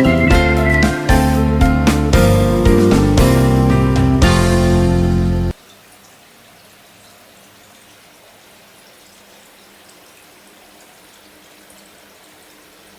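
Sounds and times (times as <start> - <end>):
running water with drips: 0.0 - 3.5, 5.5 - 12.9
background music: 0.0 - 5.6.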